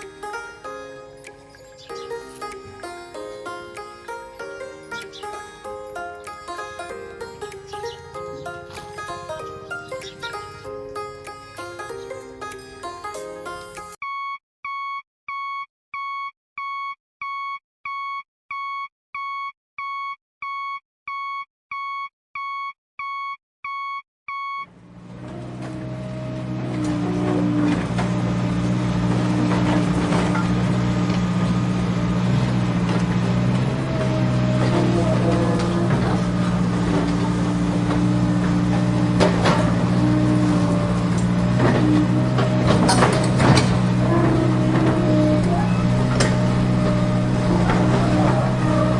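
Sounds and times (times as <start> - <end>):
vehicle engine: 0.0 - 13.2, 24.7 - 48.9
toy vehicle engine drone: 39.5 - 48.9.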